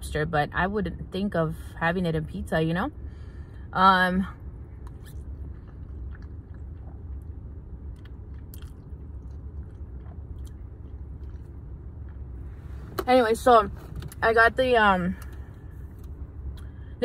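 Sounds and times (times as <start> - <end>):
steady low hum: 0.0 - 17.0
chewing and mouth sounds: 4.8 - 12.4.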